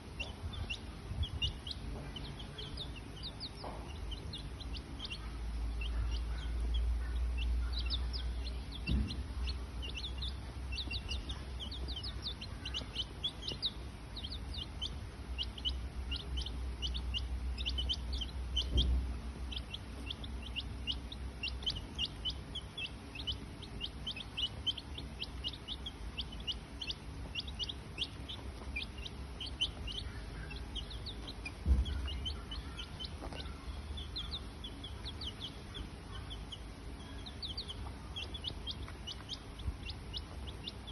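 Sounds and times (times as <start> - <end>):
high-pitched peeping calls: 0.0 - 40.9
dull thumps: 31.2 - 32.2.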